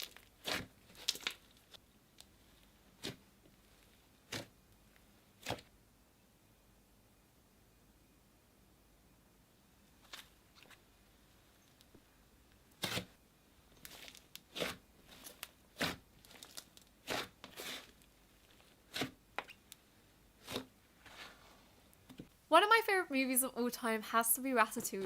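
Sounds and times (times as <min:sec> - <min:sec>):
slime crackling and squishing: 0:00.0 - 0:04.6, 0:12.8 - 0:21.5.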